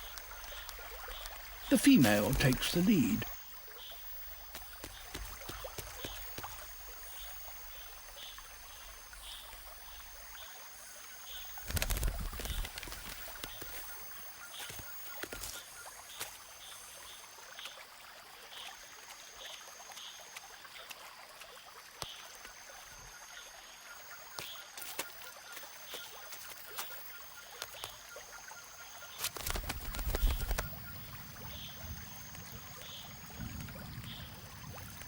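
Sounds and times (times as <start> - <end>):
high repeating call: 1.7 - 3.4
small clicks: 29.1 - 30.8.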